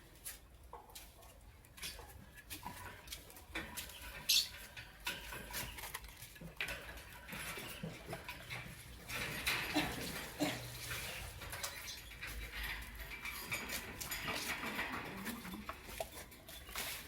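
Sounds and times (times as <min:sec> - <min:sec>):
lovebirds squeaking and chirping: 0:03.8 - 0:04.8, 0:10.0 - 0:12.6.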